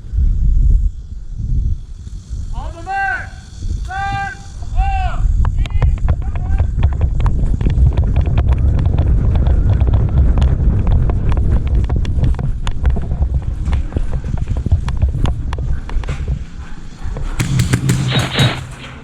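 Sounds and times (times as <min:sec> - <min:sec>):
wind buffeting microphone: 0:00.0 - 0:19.0
footsteps and knocks: 0:11.0 - 0:19.0.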